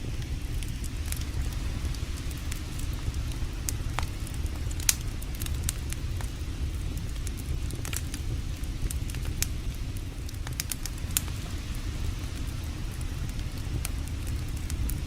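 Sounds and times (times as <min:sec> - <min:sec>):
campfire crackling and popping: 0:00.0 - 0:15.0
low fire rumble: 0:00.0 - 0:15.0.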